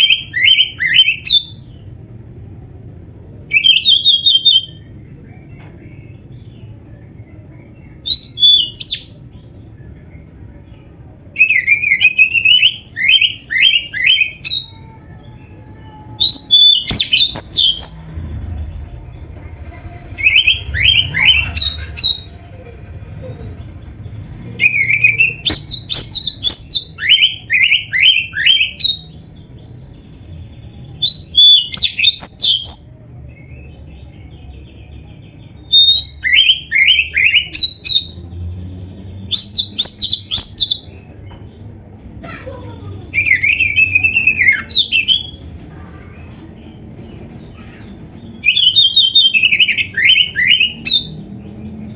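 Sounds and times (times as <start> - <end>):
bird singing whistled notes: 8.0 - 9.2, 35.6 - 38.2, 39.3 - 40.9, 48.4 - 51.2.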